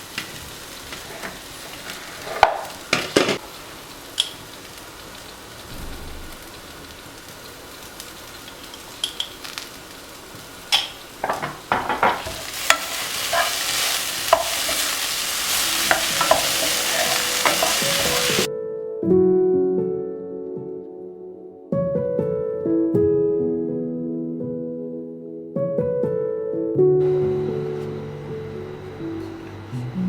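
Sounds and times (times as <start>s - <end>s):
food frying sizzle: 0.0s - 18.5s, 27.0s - 30.0s
spatula scraping pan: 0.9s - 2.8s, 11.2s - 18.5s
soft instrumental music: 15.4s - 30.0s.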